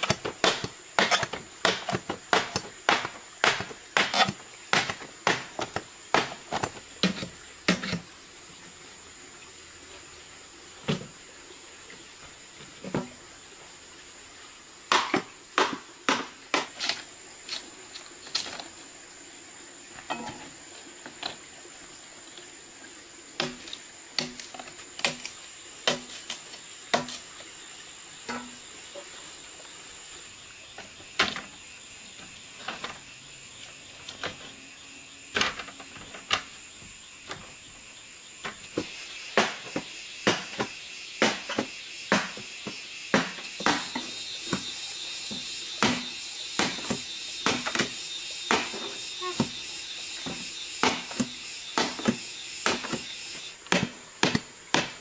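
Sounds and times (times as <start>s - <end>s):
high-pitched insect drone: 26.3s - 53.6s.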